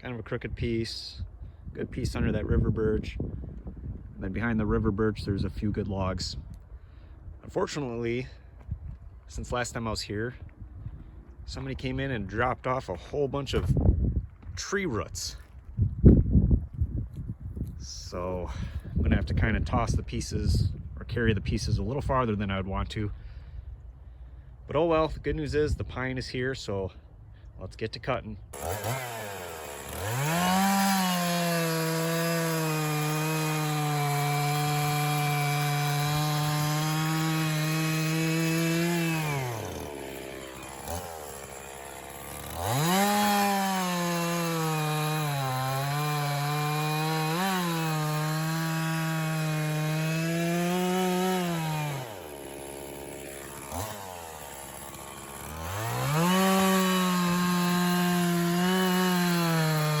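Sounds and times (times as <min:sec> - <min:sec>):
chainsaw cutting logs: 0:28.5 - 1:00.0.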